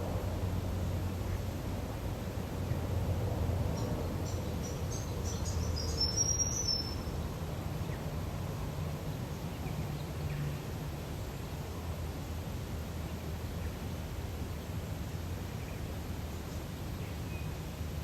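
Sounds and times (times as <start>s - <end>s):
small bird chirping: 3.8s - 7.2s.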